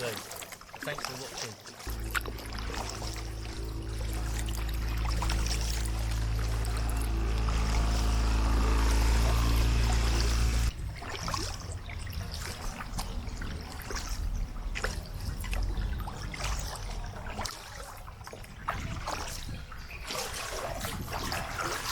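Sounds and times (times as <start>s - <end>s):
river water splashing at a kayak: 0.0s - 21.9s
music: 1.9s - 10.5s.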